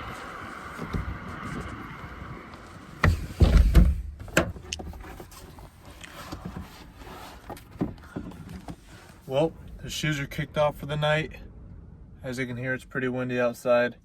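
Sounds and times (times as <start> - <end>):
heavy thumps and knocks: 3.0 - 4.6.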